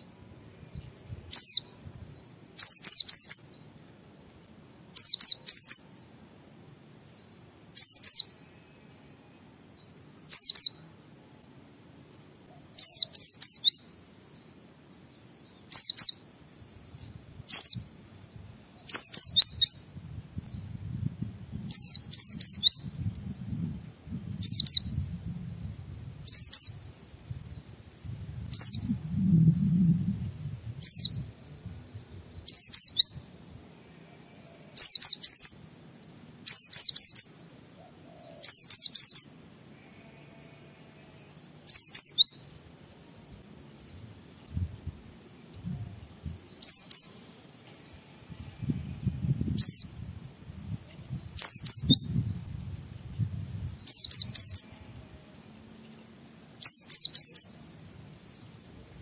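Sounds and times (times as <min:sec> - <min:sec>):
faint low rumble: 0:16.5 - 0:32.7.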